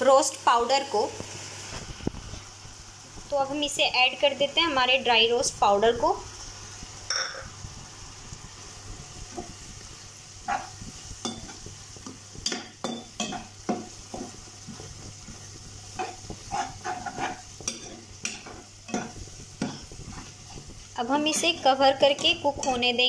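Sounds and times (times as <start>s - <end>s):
gravy sizzling in a pan: 0.0s - 23.0s
spatula scraping a pan: 10.4s - 23.0s.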